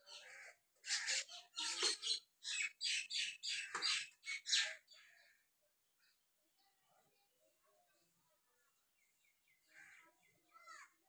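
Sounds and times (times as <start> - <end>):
bird chirping calls: 0.0 - 6.2.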